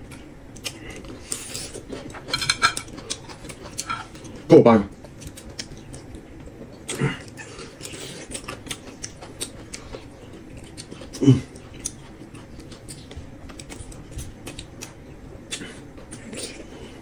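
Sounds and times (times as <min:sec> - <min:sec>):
chewing: 0:00.0 - 0:17.0
low voice hum: 0:11.1 - 0:11.6.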